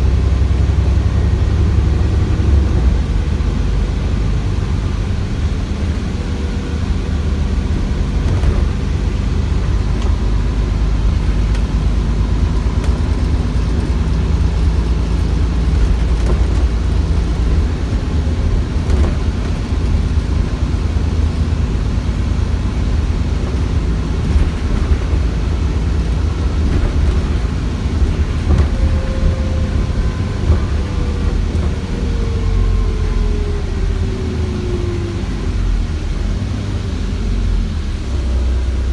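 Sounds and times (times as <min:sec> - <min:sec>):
bus engine rumble: 0:00.0 - 0:38.9.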